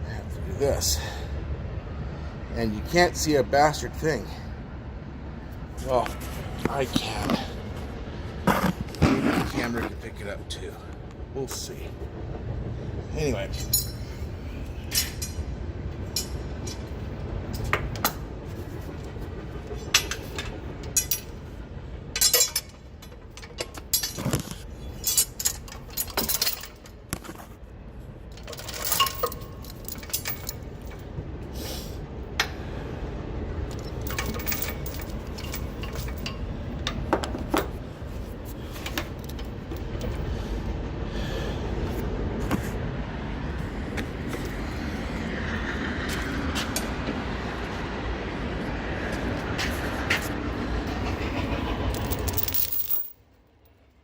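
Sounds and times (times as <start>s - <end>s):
tow chain links clanking: 13.3s - 14.2s, 14.9s - 18.3s, 19.7s - 21.5s, 22.1s - 27.0s, 28.3s - 31.2s, 33.6s - 37.8s, 38.7s - 40.3s, 51.0s - 53.3s.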